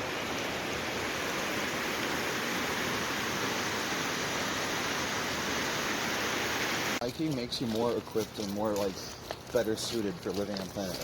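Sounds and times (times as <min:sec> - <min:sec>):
water rushing: 0:00.0 - 0:07.0.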